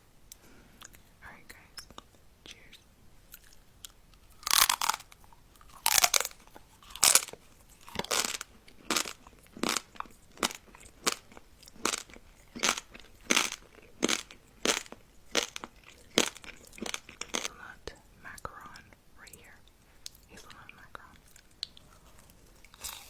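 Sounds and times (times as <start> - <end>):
crunchy food chewing: 3.3 - 17.7, 20.1 - 23.0.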